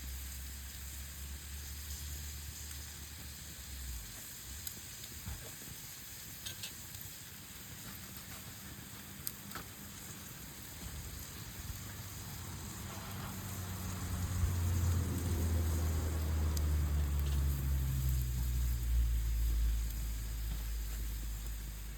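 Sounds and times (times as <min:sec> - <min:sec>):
meat sizzling over campfire: 0:00.0 - 0:21.9
low droning hum: 0:11.7 - 0:21.9.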